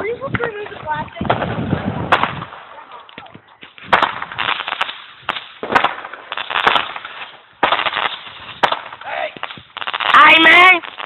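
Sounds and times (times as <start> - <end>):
firework pops and cracks: 0.3 - 11.0
firework crackling hiss: 3.6 - 11.0.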